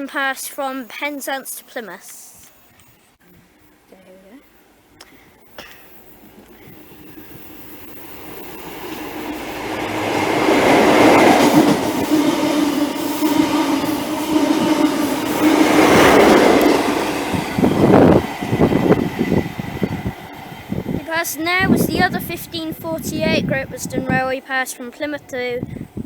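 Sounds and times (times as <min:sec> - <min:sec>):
diesel train engine hum: 0:04.5 - 0:26.0
train wheels on rails: 0:05.4 - 0:26.0.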